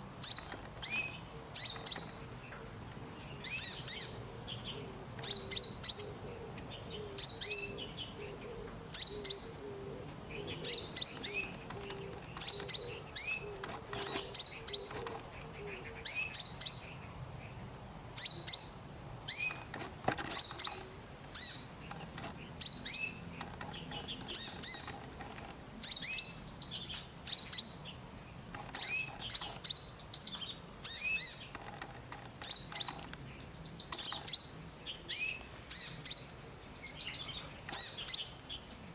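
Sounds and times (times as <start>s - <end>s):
small bird high chirps: 3.4s - 6.2s, 22.6s - 25.1s.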